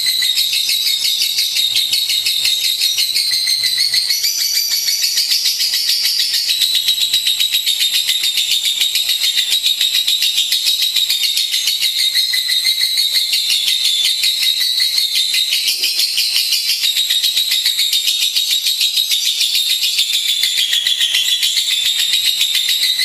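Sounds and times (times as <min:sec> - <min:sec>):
lovebird chirping and trilling: 0:00.0 - 0:23.0.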